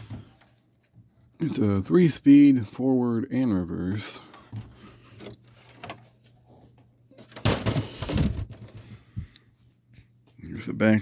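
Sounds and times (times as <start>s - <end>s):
rubbing and shuffling: 3.8s - 11.0s.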